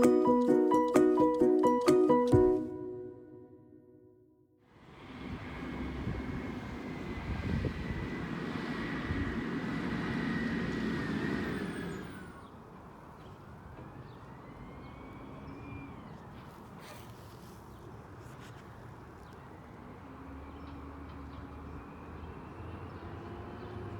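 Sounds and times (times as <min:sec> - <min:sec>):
garbage truck engine running: 0:05.1 - 0:12.5.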